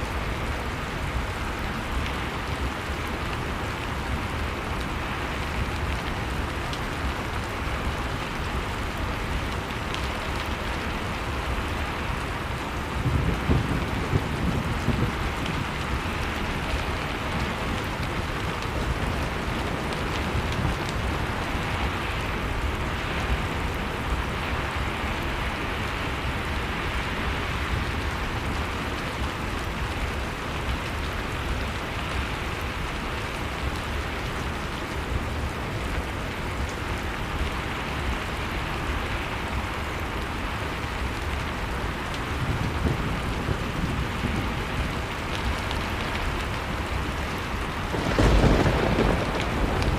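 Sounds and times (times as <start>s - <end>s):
wood fire crackling: 0.0s - 49.9s
storm wind rushing: 47.7s - 49.9s.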